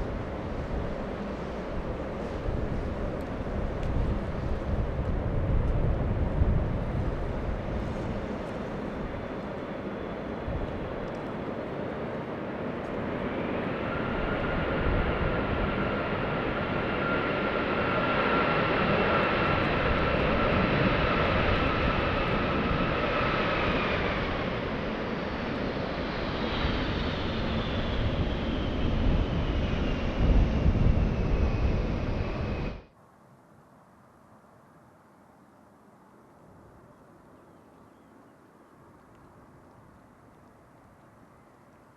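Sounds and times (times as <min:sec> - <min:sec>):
jet airliner passing: 0:00.0 - 0:32.9.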